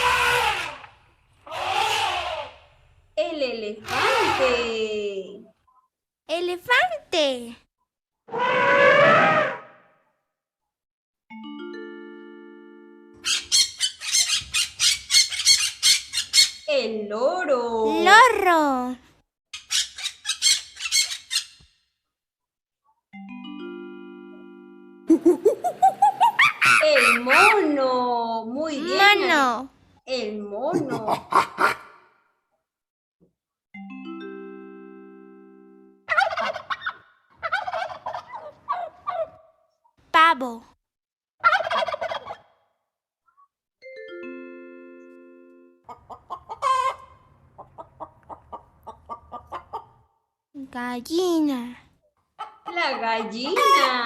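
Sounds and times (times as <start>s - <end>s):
hen clucking and squawking: 0.0s - 2.7s, 25.6s - 27.6s, 36.1s - 39.4s, 41.4s - 42.5s, 45.9s - 50.1s, 52.4s - 54.0s
parrot squawking: 0.0s - 2.7s, 3.8s - 4.6s, 13.2s - 16.7s, 19.6s - 21.6s, 26.0s - 27.7s, 46.0s - 47.2s
turkey gobbling: 25.6s - 27.5s, 36.1s - 39.5s, 41.4s - 42.6s, 45.9s - 50.0s, 52.4s - 54.0s.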